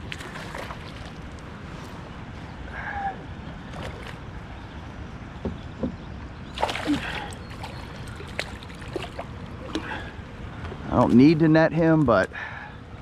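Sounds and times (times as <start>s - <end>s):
river water rumble: 0.0s - 12.3s
wind: 0.0s - 13.0s
knocks and clatter on kayak: 5.4s - 6.1s.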